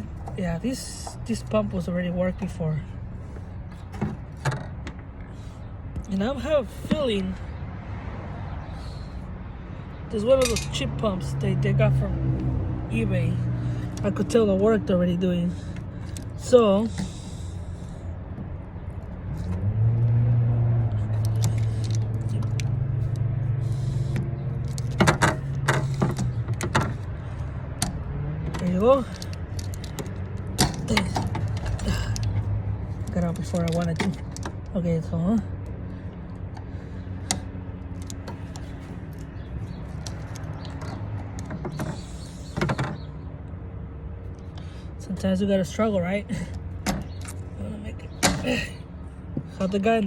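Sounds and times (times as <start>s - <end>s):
vehicle engine humming: 0.0s - 50.0s
clicks and knocks of parts: 3.3s - 6.1s, 10.4s - 10.9s, 15.7s - 17.4s, 20.8s - 34.8s, 35.6s - 43.6s, 46.4s - 49.6s.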